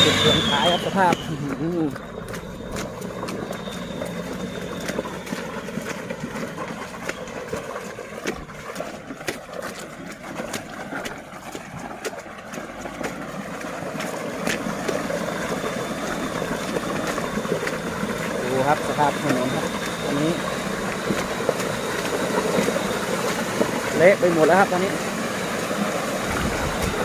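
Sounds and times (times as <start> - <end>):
road noise: 0.0 - 27.0
truck engine running: 0.0 - 27.0.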